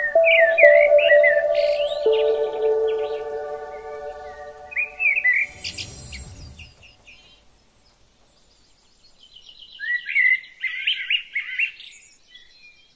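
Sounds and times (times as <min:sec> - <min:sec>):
birds chirping: 0:00.0 - 0:07.5.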